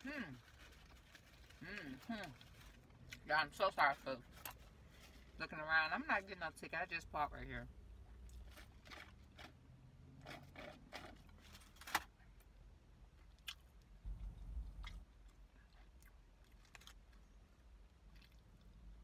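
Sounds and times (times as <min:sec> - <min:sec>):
wrapper crinkling: 0:00.0 - 0:03.0
person chewing: 0:13.1 - 0:19.0.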